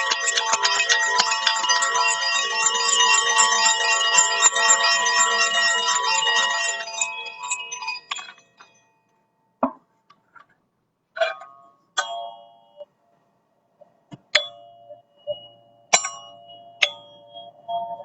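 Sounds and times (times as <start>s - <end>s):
metal chimes ringing: 0.0s - 9.1s, 14.3s - 18.0s.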